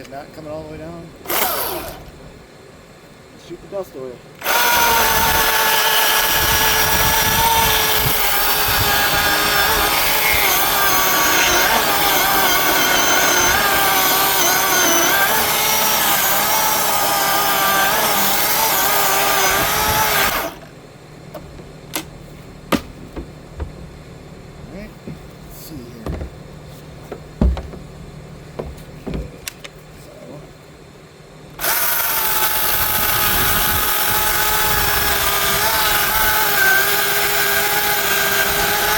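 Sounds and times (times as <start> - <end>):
electric chainsaw cutting wood: 1.2 - 2.2, 4.4 - 20.7, 31.6 - 38.9
sharp knocks: 22.7 - 23.9, 27.4 - 27.9.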